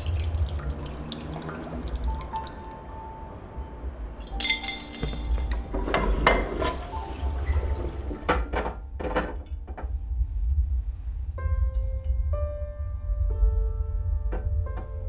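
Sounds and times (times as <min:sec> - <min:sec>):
ringing metal clang: 0:04.2 - 0:05.6
metallic clinking and clattering: 0:04.2 - 0:05.9
steady low hum: 0:08.5 - 0:15.0.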